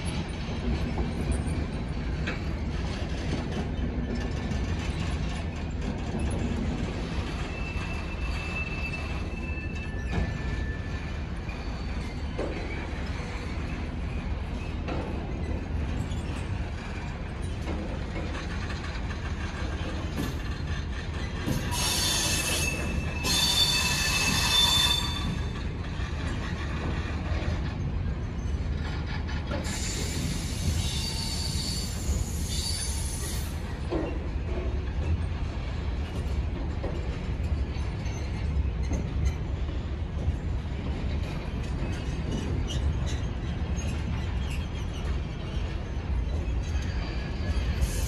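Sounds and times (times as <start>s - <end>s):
freight wagons rumbling on rails: 0.0s - 48.0s
high-pitched wheel squeal: 21.5s - 25.5s, 29.7s - 33.6s.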